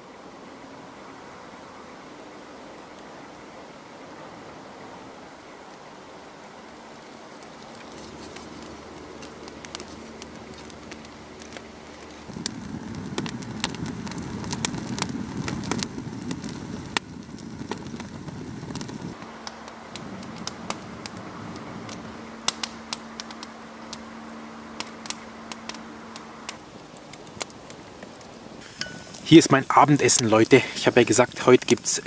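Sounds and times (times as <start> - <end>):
campfire crackling and popping: 6.6 - 32.0.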